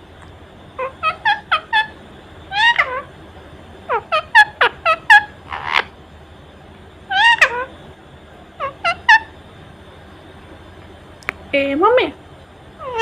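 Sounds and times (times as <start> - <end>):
parakeet squawking: 0.8 - 3.1, 3.9 - 5.9, 7.1 - 7.8, 8.6 - 9.3, 12.8 - 13.0.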